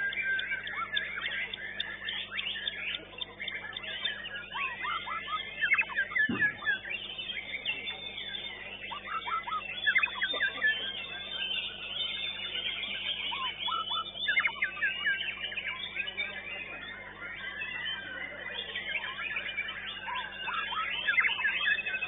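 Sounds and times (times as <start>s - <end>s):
bird singing whistles and chirps: 0.0s - 22.0s
dull thump: 6.3s - 6.6s.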